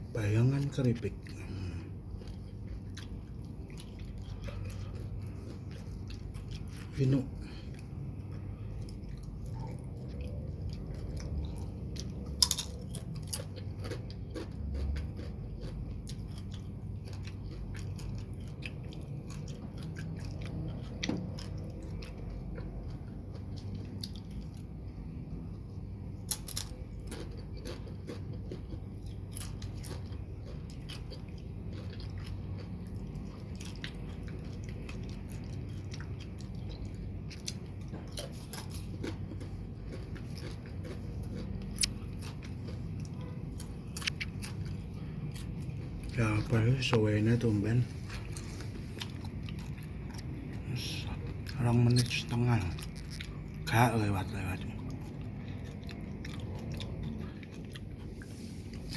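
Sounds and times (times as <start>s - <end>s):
low background hum: 0.0s - 58.9s
person chewing crunchy chips: 0.0s - 58.9s.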